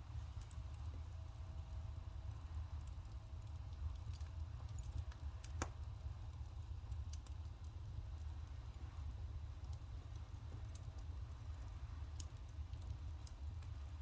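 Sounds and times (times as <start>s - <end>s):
firewood crackling and popping: 2.8s - 13.9s.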